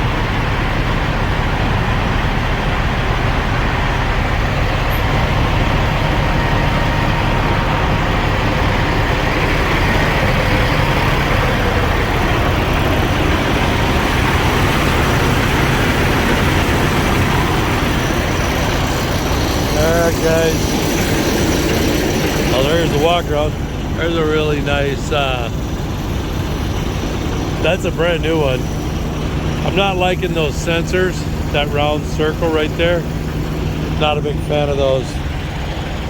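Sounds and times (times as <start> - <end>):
truck engines idling: 0.0 - 36.0.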